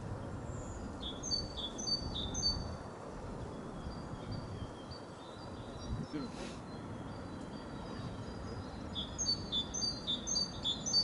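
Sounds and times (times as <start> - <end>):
songbird whistling: 7.0 - 11.0.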